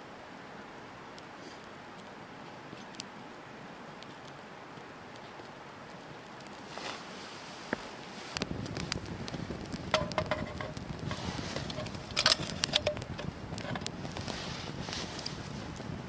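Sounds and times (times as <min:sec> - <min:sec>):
campfire crackling and popping: 0:00.3 - 0:16.0
steady rushing noise: 0:03.3 - 0:16.0.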